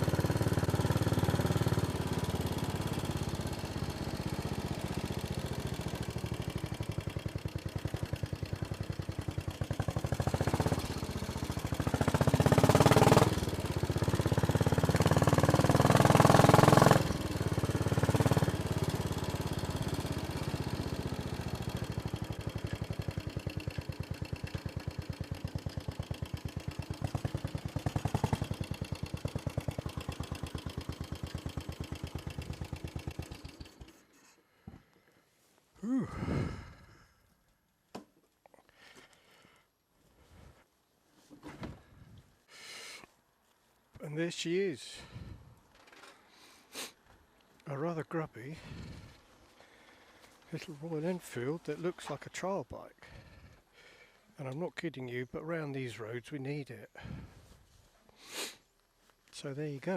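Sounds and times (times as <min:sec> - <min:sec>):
motorcycle engine thumping: 0:02.1 - 0:34.0.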